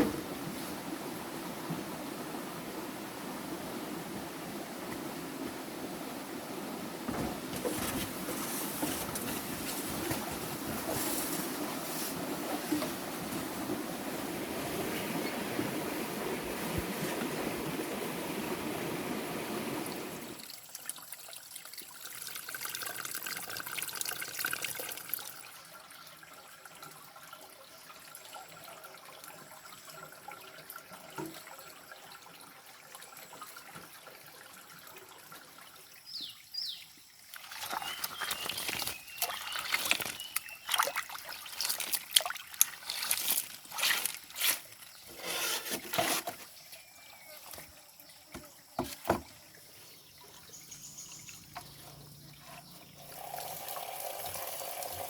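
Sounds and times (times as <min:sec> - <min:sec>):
water trickling: 0:19.8 - 0:45.3, 0:46.6 - 0:55.0
water splashing: 0:37.3 - 0:46.3
bird chirps: 0:50.4 - 0:53.1.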